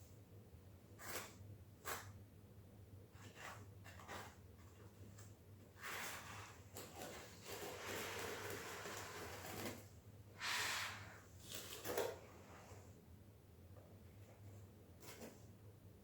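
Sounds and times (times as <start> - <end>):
scraper spreading tile adhesive: 5.8 - 9.8, 10.4 - 11.1.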